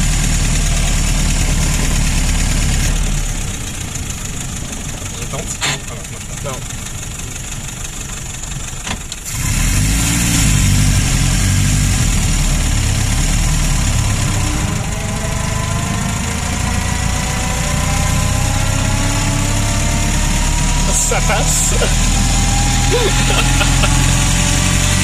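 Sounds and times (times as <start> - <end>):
car engine running: 0.0 - 25.0
rising whine: 14.4 - 25.0.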